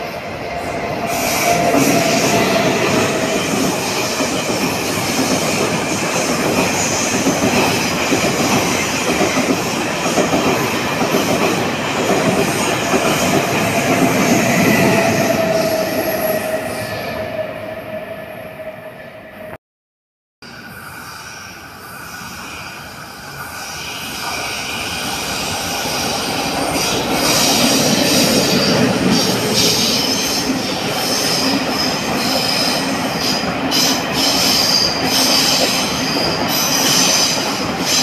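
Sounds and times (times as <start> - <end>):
train passing on rails: 0.0 - 19.6, 20.4 - 38.0.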